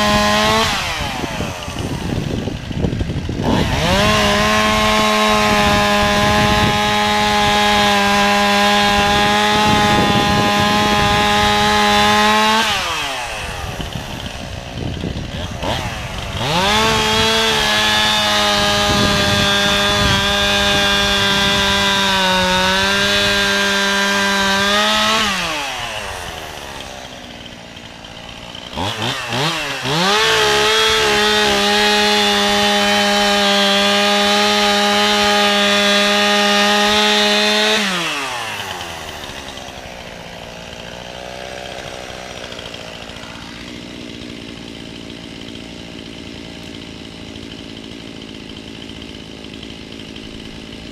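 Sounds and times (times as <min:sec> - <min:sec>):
chainsaw revving and idling: 0:00.0 - 0:50.9.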